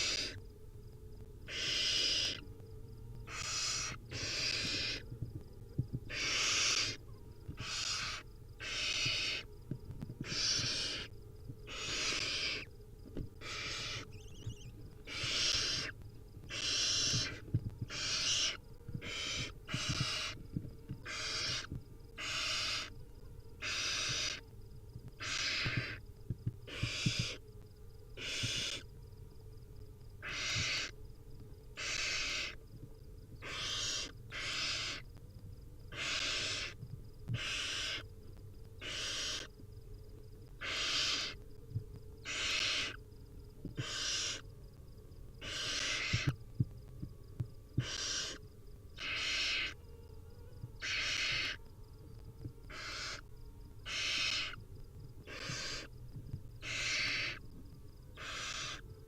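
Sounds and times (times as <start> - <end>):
owl nestlings hissing: 0.0 - 0.4, 1.5 - 2.4, 3.3 - 5.1, 6.1 - 7.0, 7.6 - 9.5, 10.2 - 11.1, 11.7 - 12.7, 13.4 - 20.4, 21.0 - 22.9, 23.6 - 24.4, 25.2 - 26.0, 26.7 - 27.4, 28.2 - 28.9, 30.2 - 31.0, 31.8 - 32.6, 33.4 - 35.0, 35.9 - 36.8, 37.4 - 38.1, 38.8 - 39.5, 40.6 - 41.4, 42.2 - 43.0, 43.8 - 44.4, 45.4 - 46.4, 47.8 - 48.4, 49.0 - 49.8, 50.8 - 51.6, 52.7 - 53.2, 53.8 - 54.6, 55.3 - 55.9, 56.6 - 57.4, 58.2 - 58.8.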